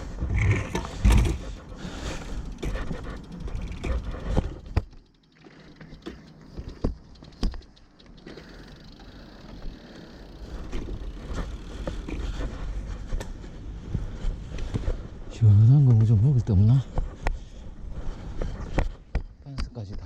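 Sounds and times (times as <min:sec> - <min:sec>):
bicycle road rumble: 0:00.0 - 0:20.0
sharp clicks and knocks: 0:02.6 - 0:09.7.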